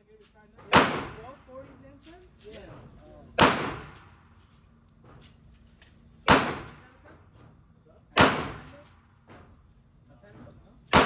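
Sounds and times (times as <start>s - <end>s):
echoing gunshots: 0.7s - 1.4s, 3.4s - 4.1s, 6.3s - 6.8s, 8.2s - 8.7s.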